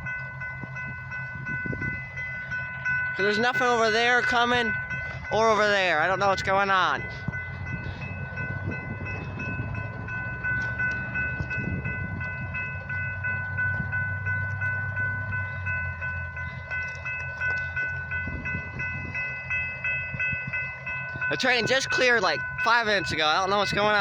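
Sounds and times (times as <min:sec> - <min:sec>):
railroad crossing bell ringing: 0:00.0 - 0:24.0.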